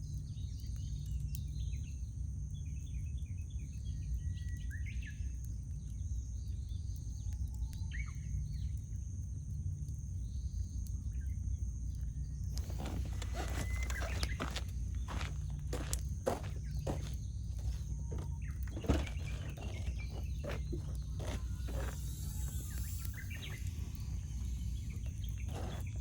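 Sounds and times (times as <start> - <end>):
steady low rumble: 11.5 - 26.0
wild birds chirping: 12.3 - 26.0
close crackles and rustles: 12.4 - 26.0.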